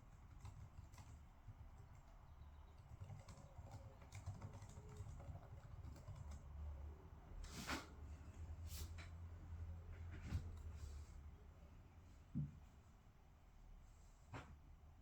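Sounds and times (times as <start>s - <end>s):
typing on keyboard: 0.0s - 6.5s
rustle or scrape: 7.4s - 8.0s.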